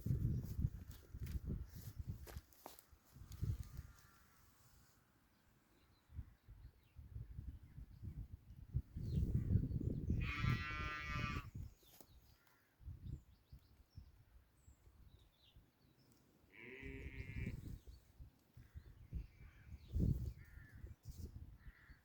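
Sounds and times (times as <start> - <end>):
sheep bleating: 10.2 - 11.5.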